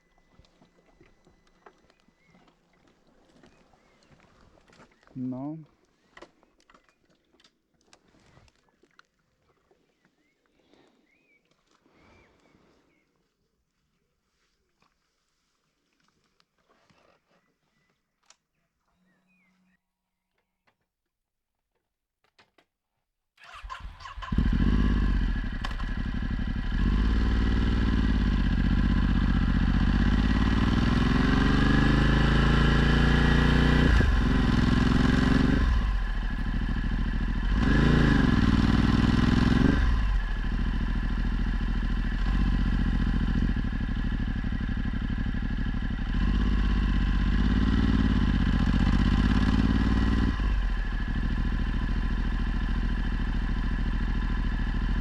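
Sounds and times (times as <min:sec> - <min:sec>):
motorcycle engine revving: 0:23.4 - 0:55.0.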